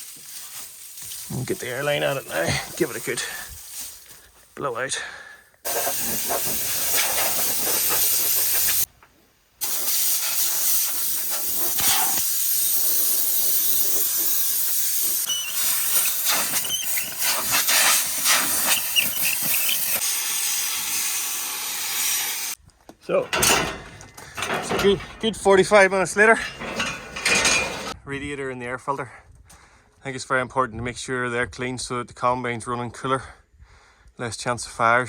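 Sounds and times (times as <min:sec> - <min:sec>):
air blow gun hissing: 0:05.7 - 0:08.9, 0:09.6 - 0:22.6.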